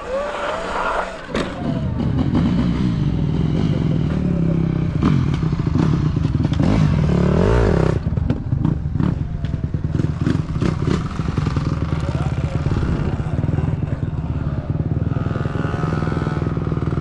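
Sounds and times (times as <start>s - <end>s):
motorcycle engine running: 1.6s - 17.0s.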